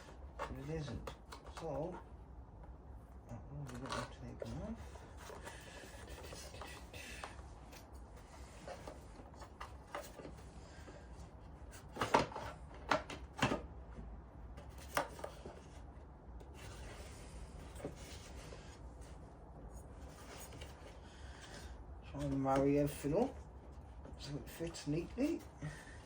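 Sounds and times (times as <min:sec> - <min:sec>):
parts rubbing and shuffling: 0:14.6 - 0:26.0.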